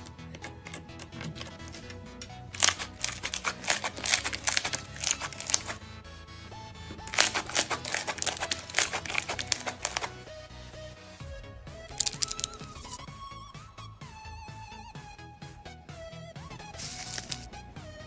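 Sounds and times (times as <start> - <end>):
background music: 0.0 - 18.0
slime crackling and popping: 2.5 - 5.8, 7.0 - 10.2, 11.9 - 13.0, 16.8 - 17.5.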